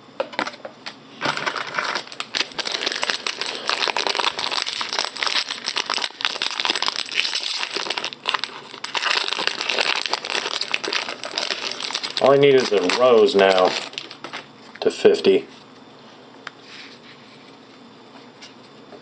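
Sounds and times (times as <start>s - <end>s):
wrapper crinkling: 1.3s - 14.5s.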